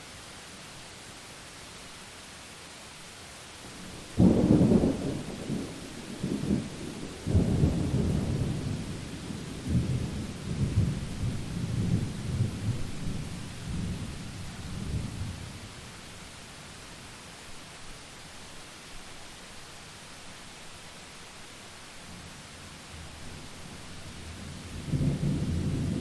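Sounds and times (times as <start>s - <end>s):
steady rain: 0.0s - 26.0s
thunder clap and rumbling: 4.0s - 14.1s, 24.7s - 26.0s.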